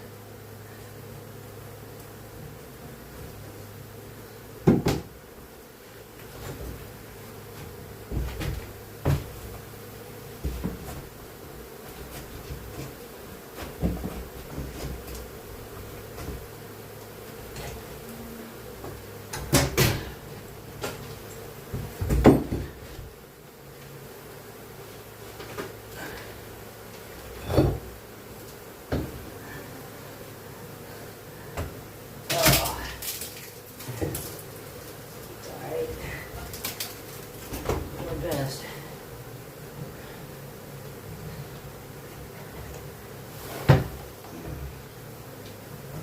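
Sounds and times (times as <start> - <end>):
honeybees buzzing: 0.0 - 46.0
dull knocks: 4.6 - 5.1, 8.0 - 9.4
handling knocks and thumps: 7.6 - 9.6, 10.4 - 11.1, 13.6 - 15.2, 21.7 - 23.1.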